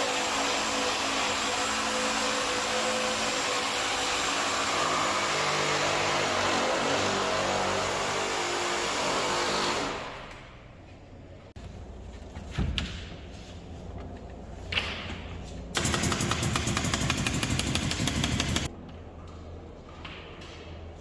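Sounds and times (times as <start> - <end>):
power tool rattling: 15.8 - 18.7.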